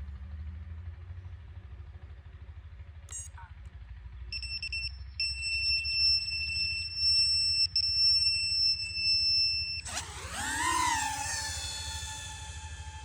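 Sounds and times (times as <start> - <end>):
quadcopter motors spinning up: 4.4 - 13.0
steady high-pitched whine: 4.4 - 13.0.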